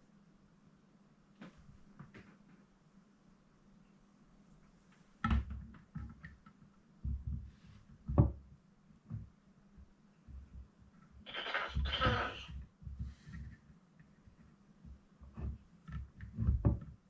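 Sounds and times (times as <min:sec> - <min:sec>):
faint low hum: 0:00.0 - 0:17.0
dull thumps and knocks: 0:07.0 - 0:08.4, 0:14.9 - 0:17.0.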